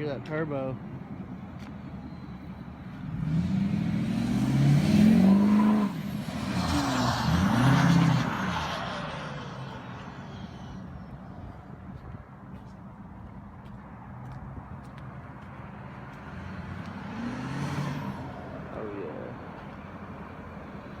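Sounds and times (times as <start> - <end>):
diesel engine revving: 2.9 - 11.1, 15.9 - 21.0.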